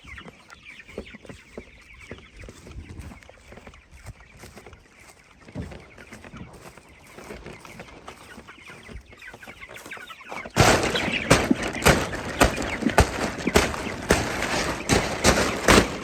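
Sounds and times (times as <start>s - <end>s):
chickens clucking: 0.0s - 16.0s
tarp rustling: 10.4s - 16.0s
sharp whacks on frame: 10.6s - 16.0s.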